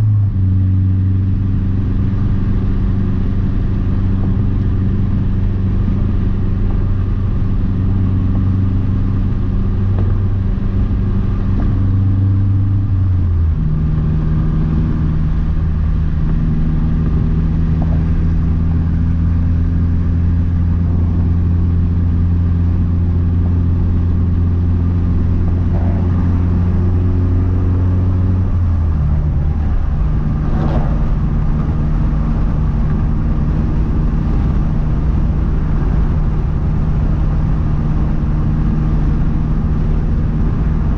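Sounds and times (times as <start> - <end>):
car engine droning: 0.0 - 40.9
road noise: 0.0 - 40.9.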